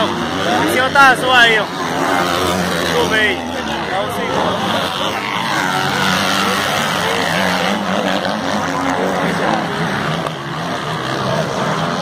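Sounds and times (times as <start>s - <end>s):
dirt bike engines racing: 0.0s - 12.0s.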